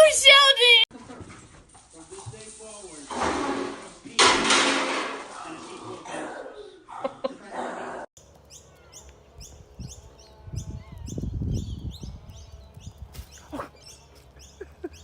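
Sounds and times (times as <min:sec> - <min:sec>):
small bird chirping: 0:08.2 - 0:15.0.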